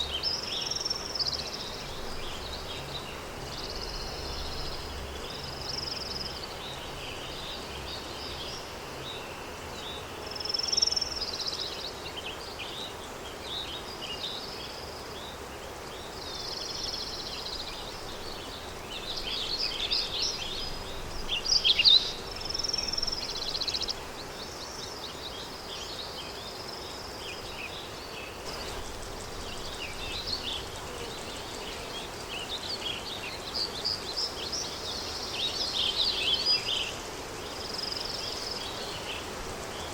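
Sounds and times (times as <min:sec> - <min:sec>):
small birds chirping: 0:00.0 - 0:39.9
wind hiss: 0:00.0 - 0:39.9.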